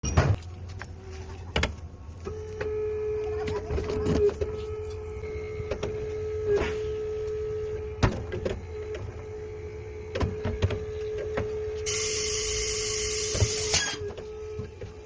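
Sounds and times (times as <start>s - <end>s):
small electric motor whining: 10.9s - 15.0s.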